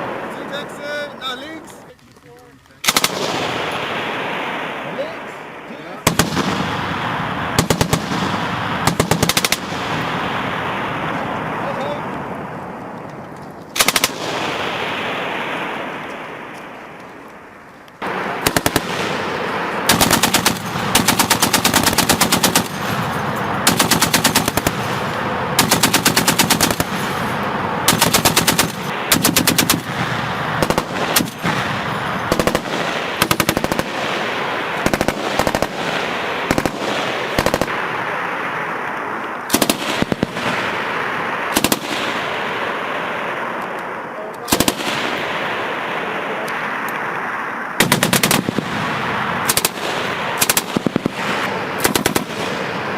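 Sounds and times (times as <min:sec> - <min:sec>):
machine gun bursts: 0:02.8 - 0:03.8, 0:08.8 - 0:09.7, 0:13.8 - 0:14.2, 0:19.8 - 0:25.0, 0:25.6 - 0:27.3, 0:27.9 - 0:29.9, 0:32.2 - 0:34.0, 0:39.5 - 0:40.4, 0:44.5 - 0:44.9, 0:49.5 - 0:52.4.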